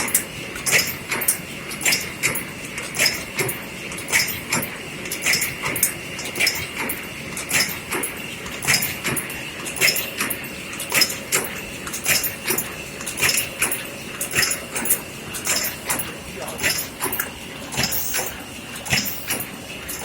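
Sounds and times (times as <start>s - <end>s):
machine mechanical knocks: 9.9s - 20.0s
machine high whine: 11.5s - 20.0s.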